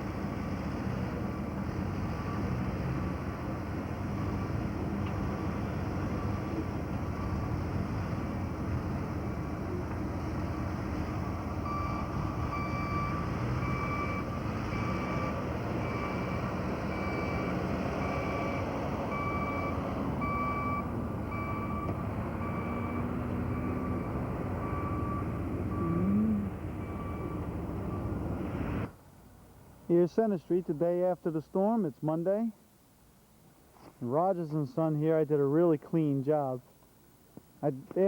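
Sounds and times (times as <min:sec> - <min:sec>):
rumble of engines and traffic: 0:00.0 - 0:38.0
vehicle backup alarm beeping: 0:11.6 - 0:28.2.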